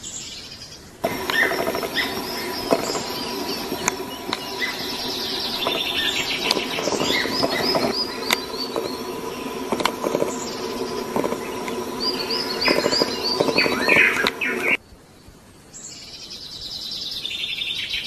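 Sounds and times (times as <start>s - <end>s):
birds chirping: 1.0s - 14.8s
low bird chattering: 1.0s - 14.8s.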